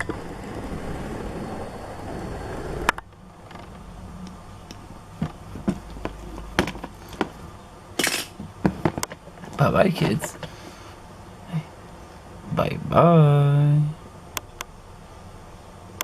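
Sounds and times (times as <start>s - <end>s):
rustling noise: 5.2s - 7.6s.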